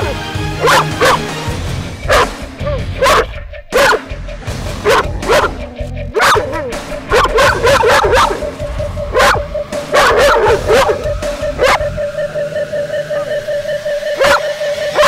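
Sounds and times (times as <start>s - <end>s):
dog barking: 0.0s - 1.4s, 2.0s - 4.1s, 4.8s - 12.4s, 14.0s - 15.0s
music playing: 0.0s - 15.0s.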